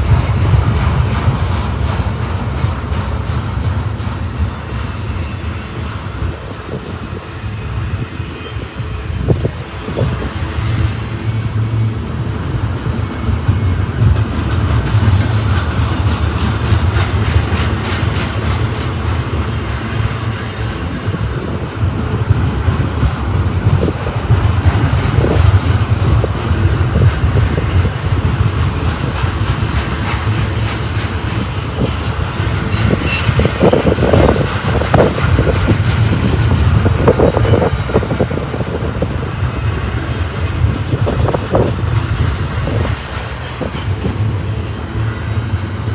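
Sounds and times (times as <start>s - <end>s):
freight train rumbling past: 0.0s - 45.9s
faint high wheel squeals: 4.7s - 8.9s, 14.9s - 16.3s, 17.6s - 20.6s.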